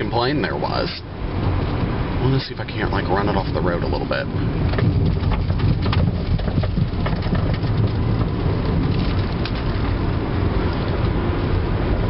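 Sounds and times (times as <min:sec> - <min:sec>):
tyre and road rumble: 0:00.0 - 0:12.0
suspension clicks and knocks: 0:03.3 - 0:11.2.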